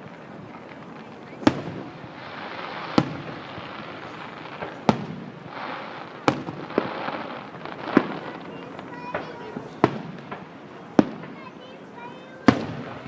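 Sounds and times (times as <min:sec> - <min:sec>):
fireworks bursting bangs: 0:00.0 - 0:13.0
fireworks crackling: 0:00.0 - 0:13.0.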